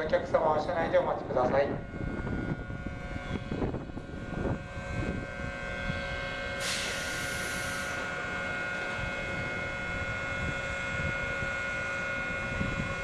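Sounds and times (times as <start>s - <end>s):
electric train hum: 0.0s - 13.0s
compressed air hiss: 6.6s - 8.0s.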